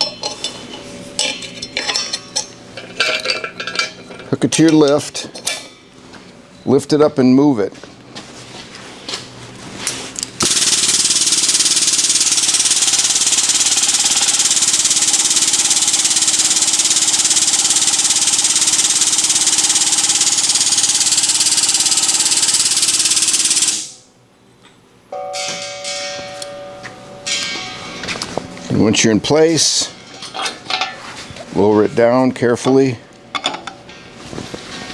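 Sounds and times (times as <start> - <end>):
powered lift running: 10.4 - 24.0.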